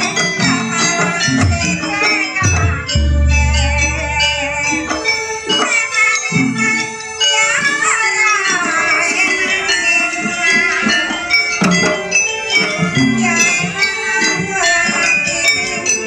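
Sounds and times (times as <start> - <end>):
gamelan dance music: 0.0 - 5.7
jingling bells: 0.0 - 16.0.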